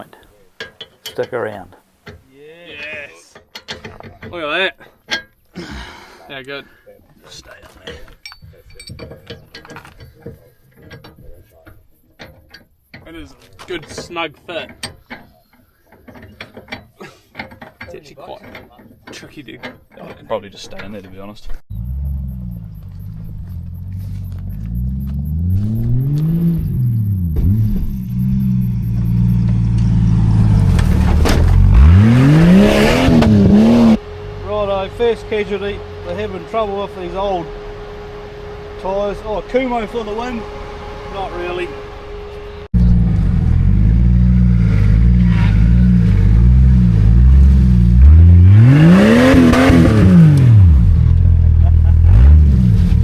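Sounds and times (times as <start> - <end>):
car engine revving: 21.7 - 53.0.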